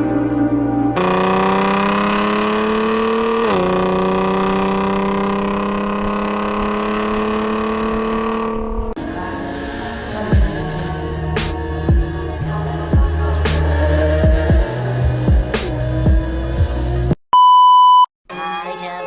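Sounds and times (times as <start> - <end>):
car engine accelerating hard: 1.0 - 15.9.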